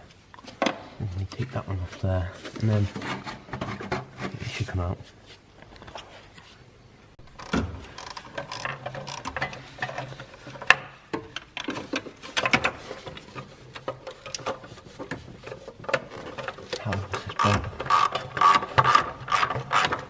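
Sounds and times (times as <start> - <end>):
hand ratchet clicking: 17.4 - 20.0.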